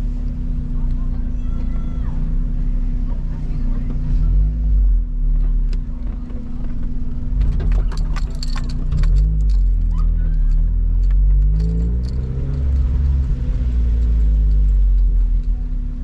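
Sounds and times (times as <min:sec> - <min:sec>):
car engine revving under load: 0:00.0 - 0:16.0.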